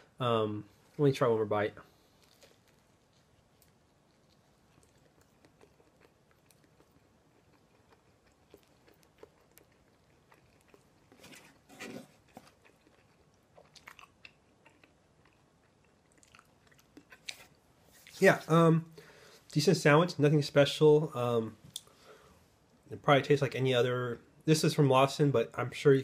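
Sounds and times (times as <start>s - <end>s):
chewing food: 1.9s - 18.2s
wet mouth clicks: 3.7s - 10.9s.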